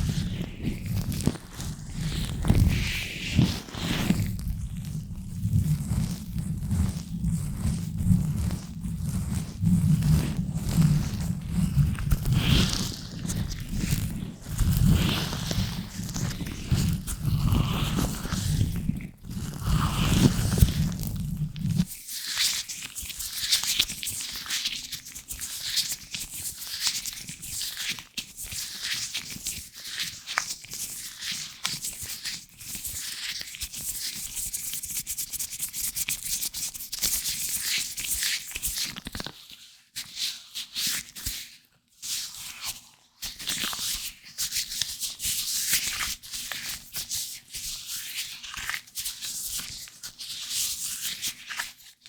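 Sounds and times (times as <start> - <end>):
gloved fingers scratching microphone: 0.0 - 21.8.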